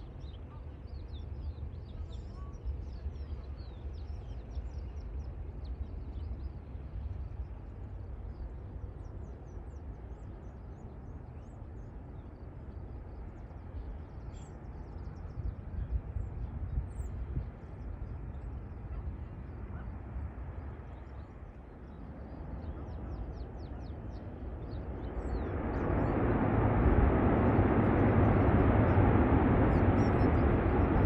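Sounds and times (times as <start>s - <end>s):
low uneven rumble: 13.3s - 31.0s.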